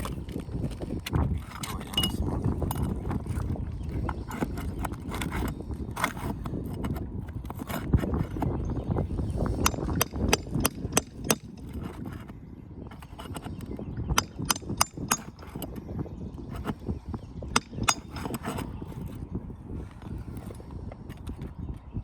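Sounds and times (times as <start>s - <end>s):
metal tool clicking on nails: 14.2s - 15.8s.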